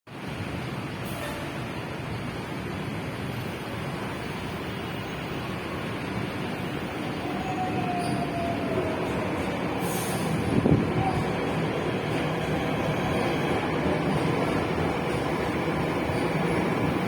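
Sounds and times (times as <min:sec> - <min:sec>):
train rumbling: 0:00.1 - 0:17.0
faint thin squeal: 0:07.4 - 0:08.8.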